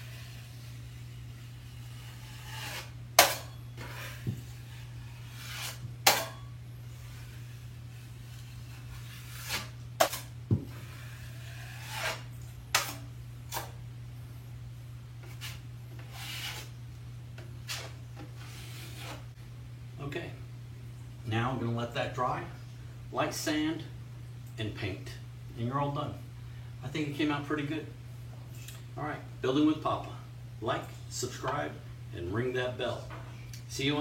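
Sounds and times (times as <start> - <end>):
drywall knife scraping: 0.0 - 13.8, 15.2 - 16.8, 17.6 - 19.3.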